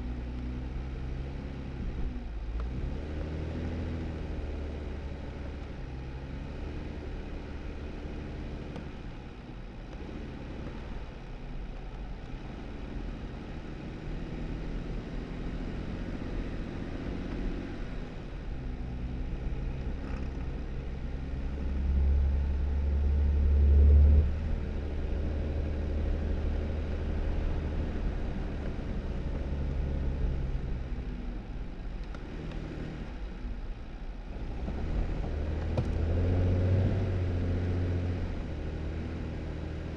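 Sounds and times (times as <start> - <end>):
car engine running: 0.0 - 39.9
tyre and road noise: 8.7 - 39.9
low rumble: 17.4 - 32.3.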